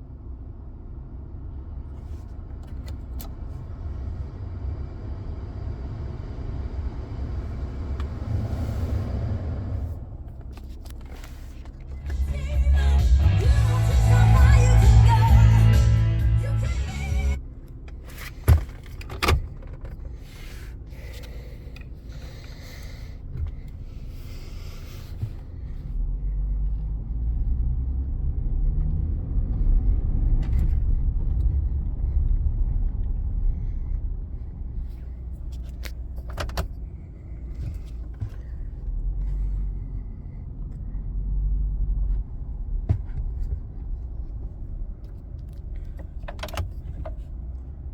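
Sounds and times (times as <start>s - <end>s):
truck engine rumbling: 1.6s - 27.7s.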